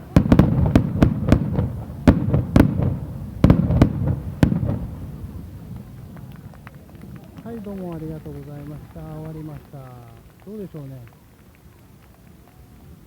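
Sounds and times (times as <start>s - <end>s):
low rolling rumble: 0.0s - 10.4s
fireworks bursting: 0.0s - 13.0s.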